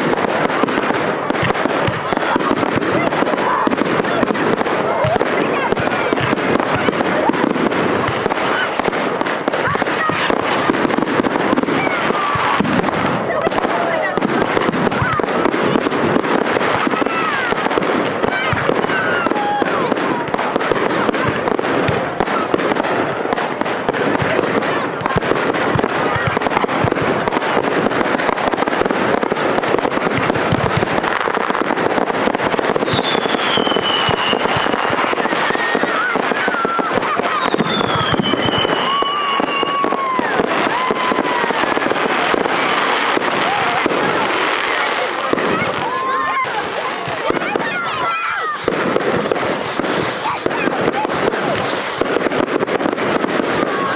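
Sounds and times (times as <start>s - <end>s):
crowd voices: 0.0s - 53.9s
fireworks crackling and popping: 0.0s - 53.9s
high falling whistles: 32.8s - 35.9s, 37.4s - 40.0s.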